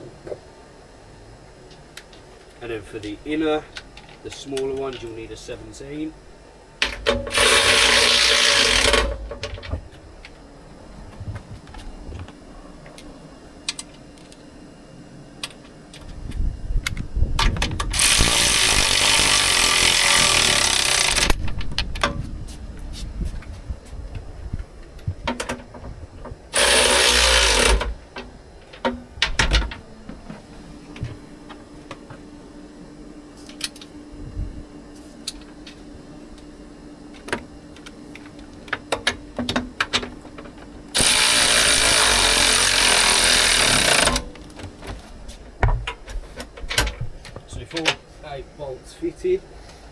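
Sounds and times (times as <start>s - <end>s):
power tool running down bolts: 6.9s - 9.2s, 17.9s - 21.4s, 26.5s - 28.0s, 40.9s - 44.3s.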